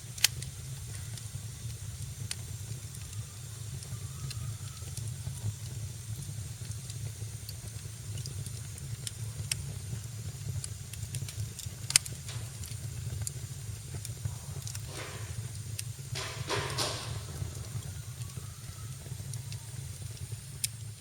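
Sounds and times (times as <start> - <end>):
fire crackling and popping: 0.0 - 21.0
steady low rumble: 5.1 - 21.0.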